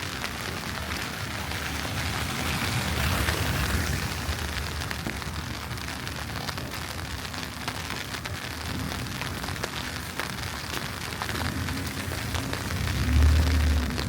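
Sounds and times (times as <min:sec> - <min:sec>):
wet hiss of street: 0:00.0 - 0:14.0
low rumble: 0:01.6 - 0:06.1, 0:11.4 - 0:14.0.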